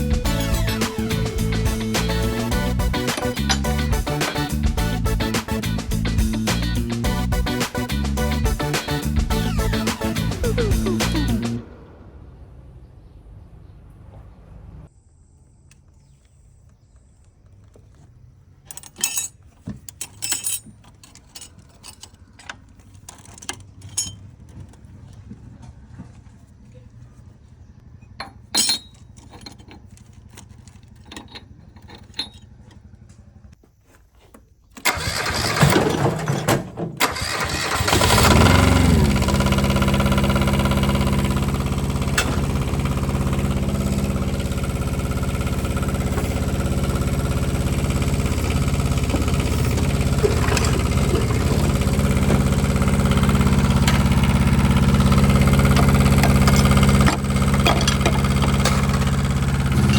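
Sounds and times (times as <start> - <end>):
starter cranking: 0.0 - 11.6, 28.8 - 33.6, 34.7 - 59.9
diesel engine idling: 0.0 - 14.9, 37.0 - 59.9.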